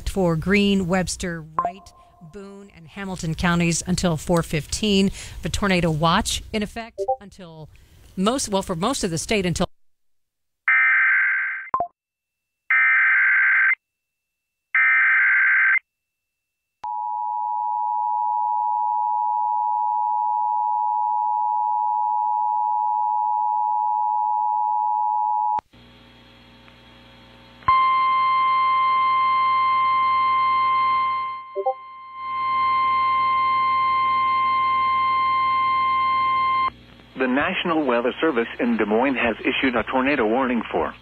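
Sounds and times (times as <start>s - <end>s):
two-tone attention signal: 1.6s - 2.4s, 31.1s - 36.6s.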